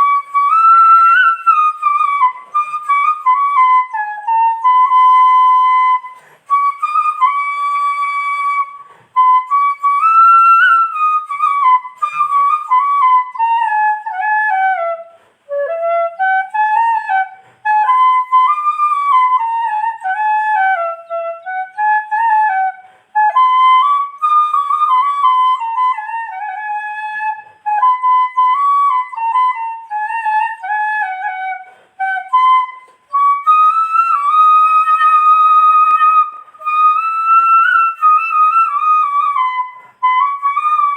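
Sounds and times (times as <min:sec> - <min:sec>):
solo flute melody: 0:00.0 - 0:40.9
flute player breaths: 0:06.0 - 0:06.6, 0:08.8 - 0:09.2, 0:15.1 - 0:15.6, 0:17.3 - 0:17.7, 0:22.8 - 0:23.2, 0:31.6 - 0:32.0.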